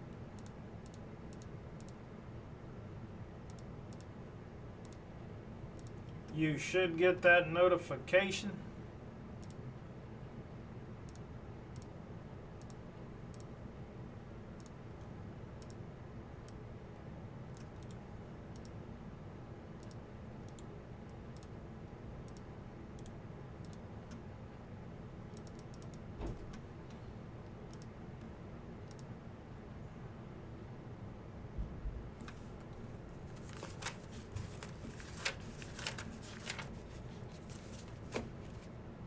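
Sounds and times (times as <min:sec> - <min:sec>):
low room hum: 0:00.0 - 0:39.0
computer mouse clicking: 0:00.4 - 0:02.1, 0:03.5 - 0:04.1, 0:04.8 - 0:05.0, 0:05.8 - 0:06.2, 0:09.4 - 0:09.6, 0:11.1 - 0:11.9, 0:12.6 - 0:13.5, 0:15.6 - 0:15.8, 0:17.6 - 0:18.8, 0:19.8 - 0:21.5, 0:22.3 - 0:24.2, 0:25.3 - 0:26.6, 0:27.7 - 0:29.1.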